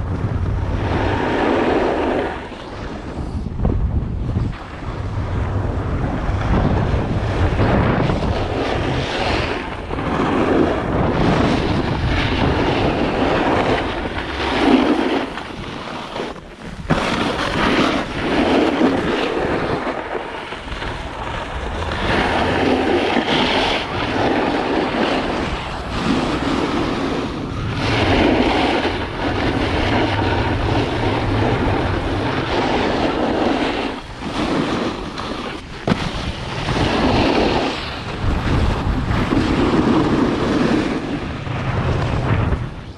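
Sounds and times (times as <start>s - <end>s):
snowboard sliding across snow: 0.0s - 42.9s
wind rushing over microphone: 0.0s - 42.9s.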